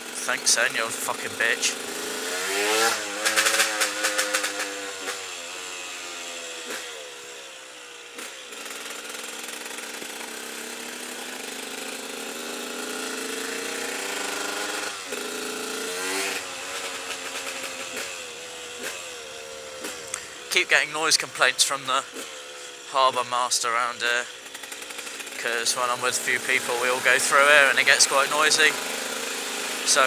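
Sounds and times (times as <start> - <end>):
two-stroke motorcycle engine: 0.0 - 30.0.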